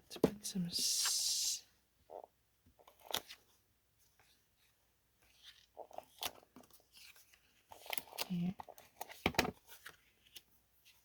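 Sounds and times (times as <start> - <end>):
paper rustling: 4.1 - 11.0.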